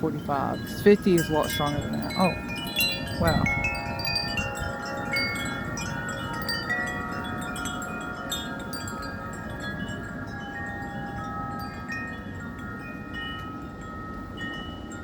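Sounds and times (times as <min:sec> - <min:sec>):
low rumble of wind: 0:00.0 - 0:15.0
wind chimes ringing: 0:00.0 - 0:15.0.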